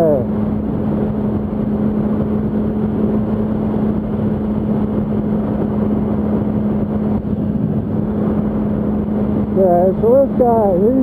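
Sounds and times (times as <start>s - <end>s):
heavy wind rush: 0.0s - 11.0s
motorcycle engine at speed: 0.0s - 11.0s.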